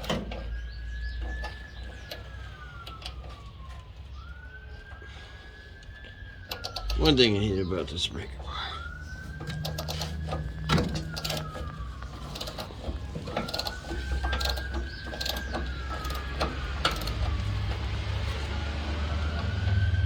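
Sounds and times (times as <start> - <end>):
siren wailing: 0.0 - 20.0
ratchet clicking: 9.5 - 11.6, 12.2 - 17.6.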